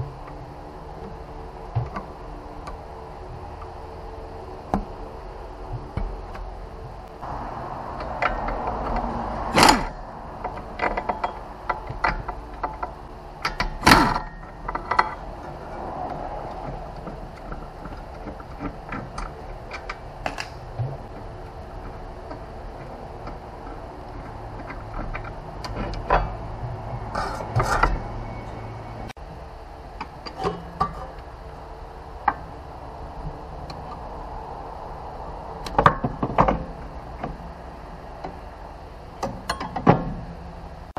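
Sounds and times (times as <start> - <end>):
loud metal clanks: 8.0 - 15.5.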